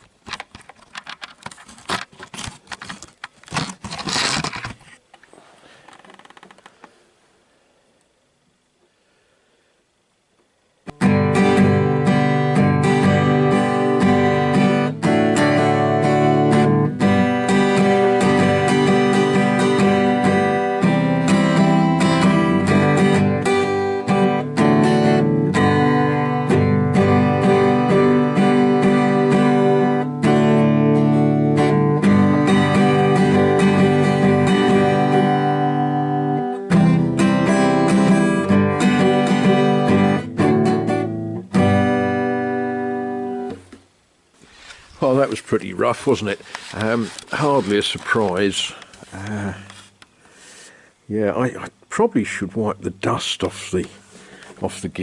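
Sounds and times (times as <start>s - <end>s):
acoustic guitar strumming chords: 10.9s - 43.8s.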